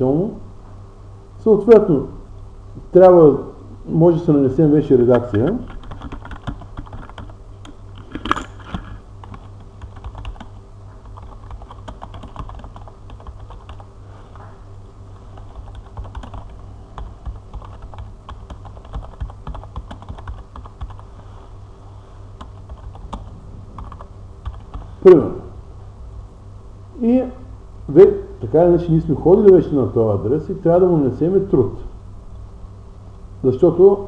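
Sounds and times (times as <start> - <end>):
low hum: 0.0 - 34.0
keyboard typing: 5.1 - 13.9, 15.2 - 21.1, 22.4 - 24.9.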